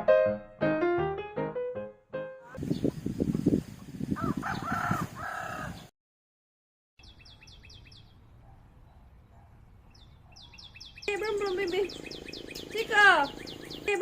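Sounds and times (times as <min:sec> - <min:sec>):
small birds chirping: 0:02.6 - 0:05.9, 0:07.0 - 0:14.0
rooster crowing: 0:04.2 - 0:05.9.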